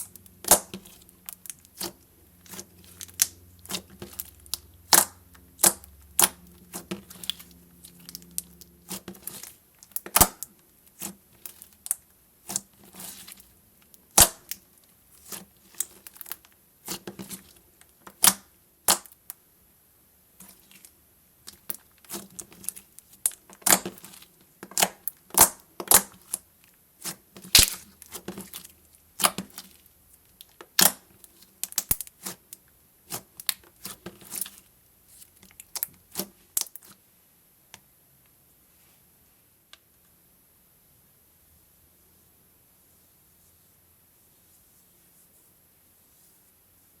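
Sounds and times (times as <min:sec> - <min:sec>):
slime squished by hand: 0:27.0 - 0:29.8.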